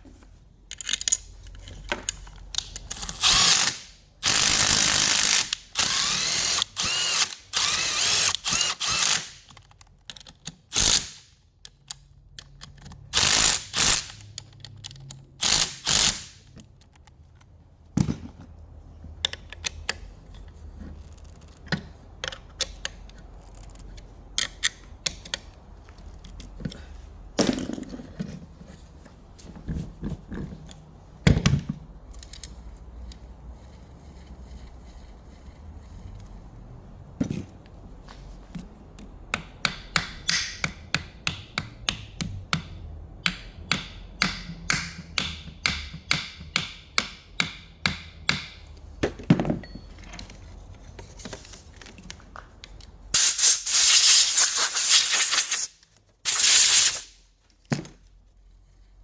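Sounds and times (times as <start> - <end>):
metallic clicks of tool handling: 0.7 - 3.2
ratchet wrench ratcheting: 2.1 - 9.7, 10.5 - 16.4, 53.2 - 55.7, 56.3 - 57.2.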